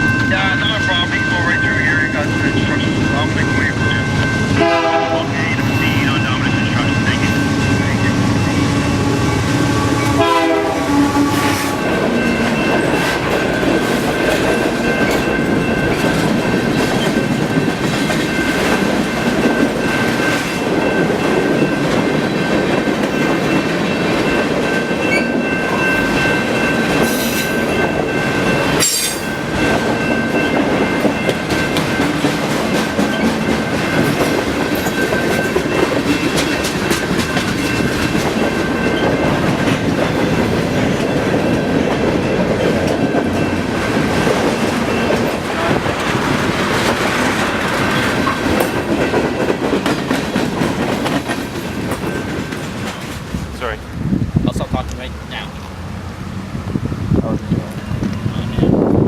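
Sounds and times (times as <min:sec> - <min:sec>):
train horn: 0:04.5 - 0:06.0, 0:07.2 - 0:11.9
freight cars rumbling and clattering: 0:11.3 - 0:59.0.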